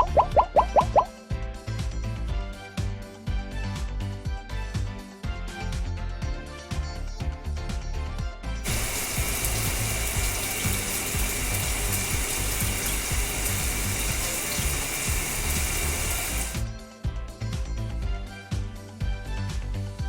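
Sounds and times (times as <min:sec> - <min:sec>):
background music with beat: 0:00.0 - 0:20.0
spraying water hiss: 0:08.6 - 0:16.7.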